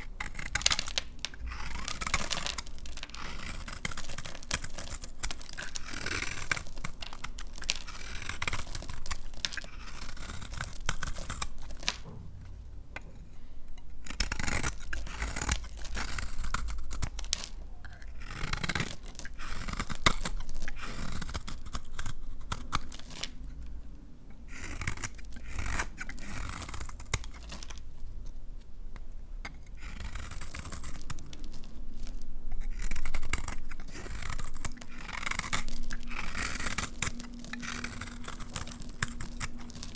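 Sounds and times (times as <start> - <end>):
knife cutting soap: 0.0 - 12.1, 29.1 - 39.9.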